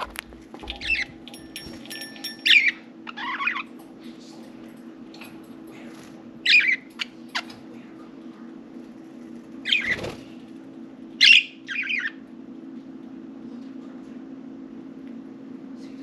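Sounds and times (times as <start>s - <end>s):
steady low hum: 0.0s - 16.0s
budgerigars chirping: 0.8s - 1.2s, 6.4s - 7.5s, 9.6s - 10.1s, 11.2s - 12.2s.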